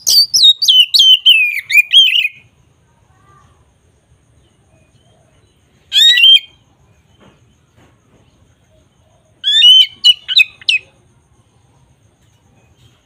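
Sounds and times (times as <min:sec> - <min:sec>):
bird calling: 0:00.0 - 0:02.5, 0:04.7 - 0:07.4, 0:08.5 - 0:11.0.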